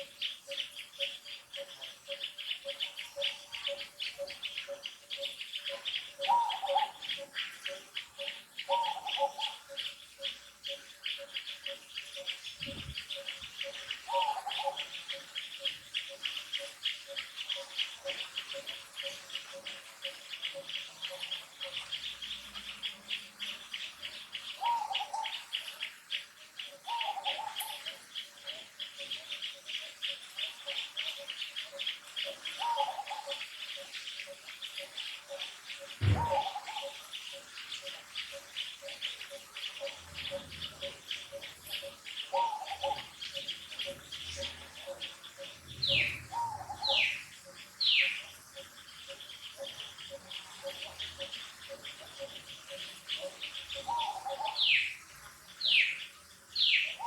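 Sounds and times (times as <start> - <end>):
fast pulsing bird chirp: 0.0 - 57.0
short bird calls: 35.9 - 37.0
thump: 36.0 - 36.4
low repeated bird note: 36.0 - 36.8
quick falling high bird calls: 36.0 - 36.9.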